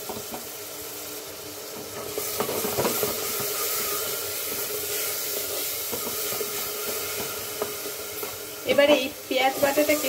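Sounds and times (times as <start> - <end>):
onion paste sizzling in oil: 0.0 - 10.0.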